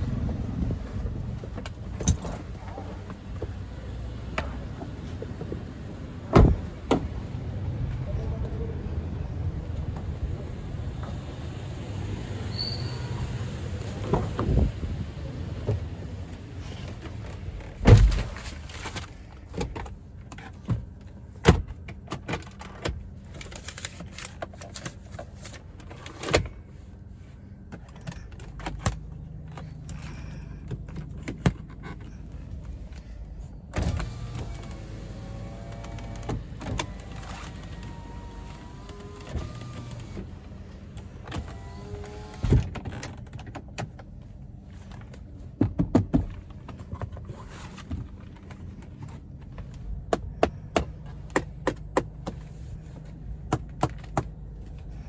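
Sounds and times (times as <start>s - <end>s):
clicks and knocks of car controls: 27.7s - 33.0s, 40.9s - 54.9s
power window motor whirring: 33.8s - 40.4s, 41.0s - 43.1s.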